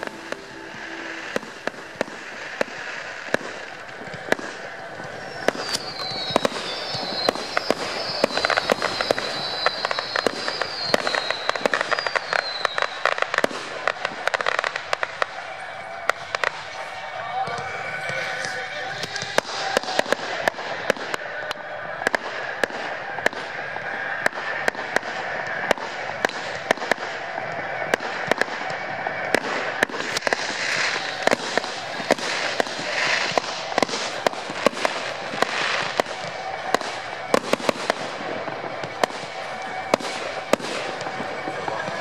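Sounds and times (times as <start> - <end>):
fireworks bangs: 0.0 - 42.0.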